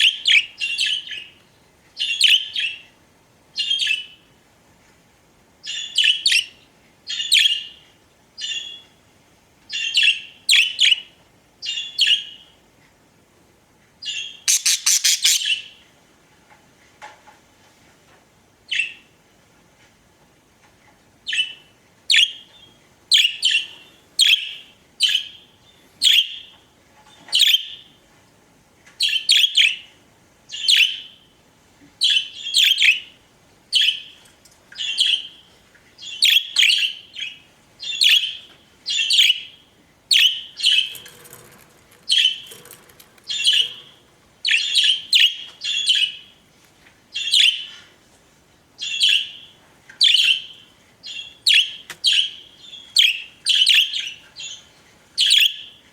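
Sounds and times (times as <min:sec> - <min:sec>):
budgerigars chirping: 0:14.1 - 0:15.7, 0:42.1 - 0:46.2.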